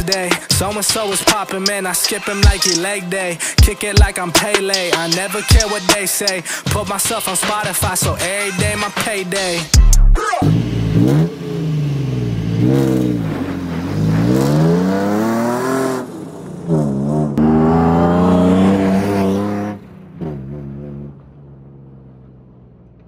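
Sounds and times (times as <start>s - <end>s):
car engine revving: 9.6s - 23.0s.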